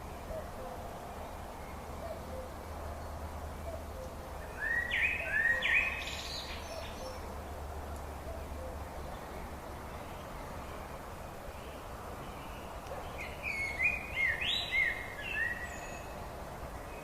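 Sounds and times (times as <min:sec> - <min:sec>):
songbird whistled notes: 0:04.0 - 0:07.2, 0:13.2 - 0:16.1.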